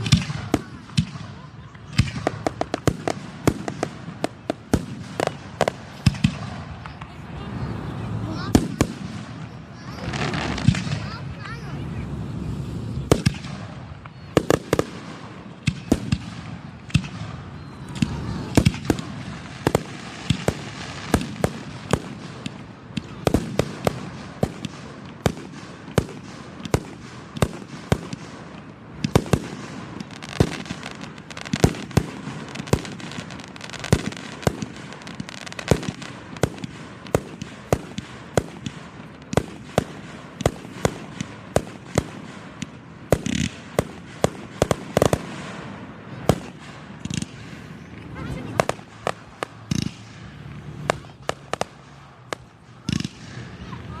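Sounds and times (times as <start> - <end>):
continuous noisy rumble: 0.0 - 54.0
fireworks bursting bangs: 0.0 - 54.0.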